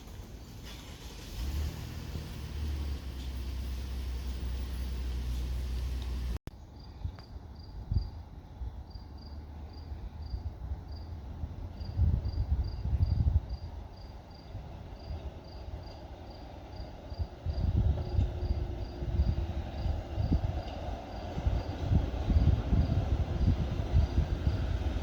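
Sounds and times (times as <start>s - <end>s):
cricket chirping: 8.9s - 24.9s.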